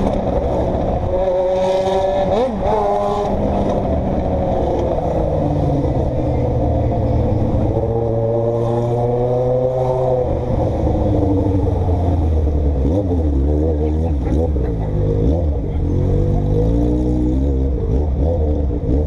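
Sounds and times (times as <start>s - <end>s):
vehicle engine running: 2.0s - 8.2s.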